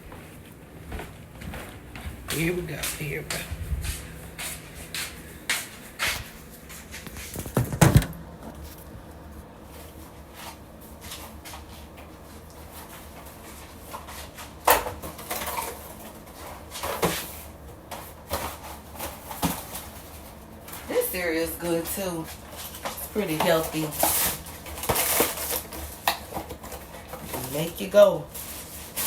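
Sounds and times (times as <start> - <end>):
household items knocking and thumping: 7.3 - 8.6.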